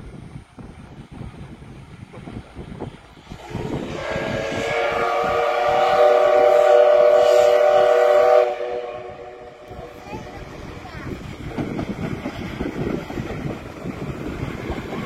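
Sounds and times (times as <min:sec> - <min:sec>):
moving train rumble: 0:00.0 - 0:15.0
train horn blast: 0:03.4 - 0:09.9.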